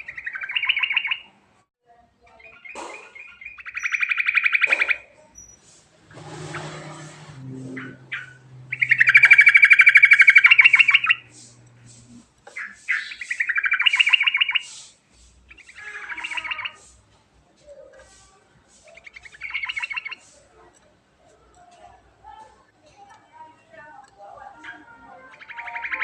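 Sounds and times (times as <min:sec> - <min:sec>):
bird rattling chatter: 0:02.5 - 0:17.0, 0:17.9 - 0:20.9.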